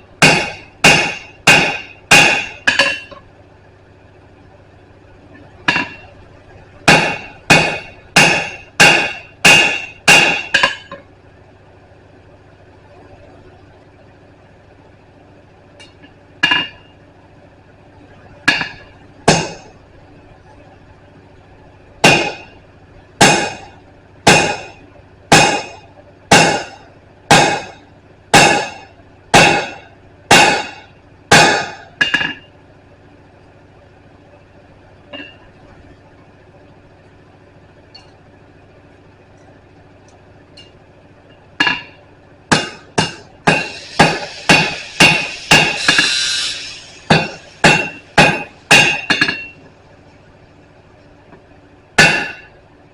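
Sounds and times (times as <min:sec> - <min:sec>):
hammer striking steel on anvil: 0:00.2 - 0:03.2, 0:05.7 - 0:06.2, 0:06.9 - 0:11.0, 0:15.8 - 0:16.8, 0:18.5 - 0:19.7, 0:22.0 - 0:22.6, 0:23.2 - 0:32.5, 0:41.6 - 0:49.6, 0:52.0 - 0:52.6.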